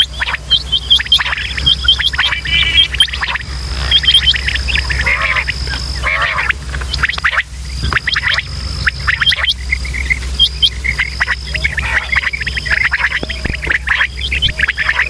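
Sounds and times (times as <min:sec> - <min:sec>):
high whine: 0:00.0 - 0:15.0
low hum: 0:00.0 - 0:15.0
quail calling: 0:00.0 - 0:15.0.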